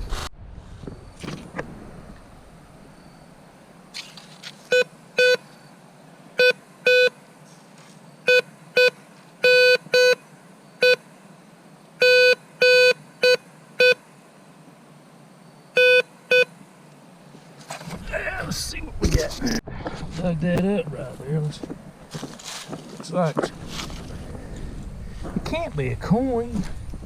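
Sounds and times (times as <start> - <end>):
metal detector beeps: 4.7 - 5.7, 6.4 - 7.2, 8.2 - 10.2, 10.8 - 11.0, 12.0 - 14.0, 15.7 - 16.5.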